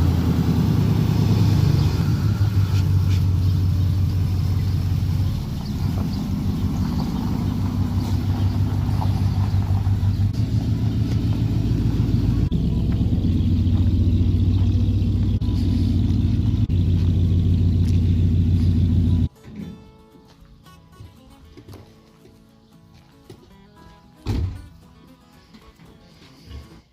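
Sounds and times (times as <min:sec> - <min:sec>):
vehicle engine running: 0:00.0 - 0:19.3.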